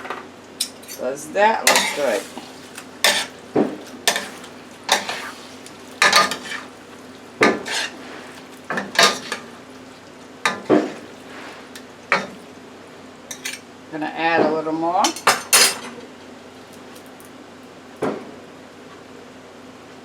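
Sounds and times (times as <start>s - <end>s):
utensil scraping frying pan: 1.5s - 12.5s.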